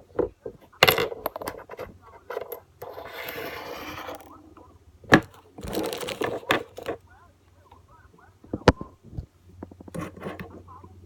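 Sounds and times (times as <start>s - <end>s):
scrape of small parts: 0.2s - 4.3s, 5.6s - 7.0s, 9.9s - 10.6s.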